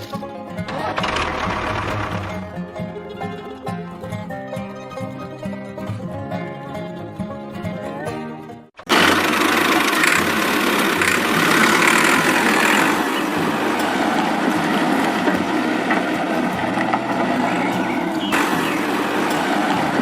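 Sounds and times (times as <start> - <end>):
constant rattle: 0.0 - 3.5, 8.8 - 20.0
small electric motor humming: 8.9 - 14.7.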